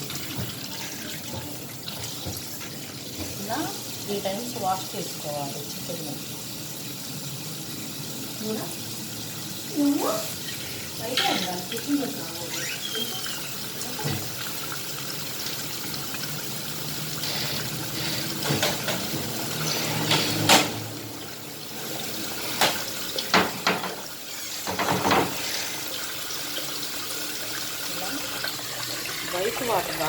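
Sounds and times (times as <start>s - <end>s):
tap water running: 0.0s - 30.0s
knocks and splashes: 22.6s - 24.0s, 24.6s - 25.4s.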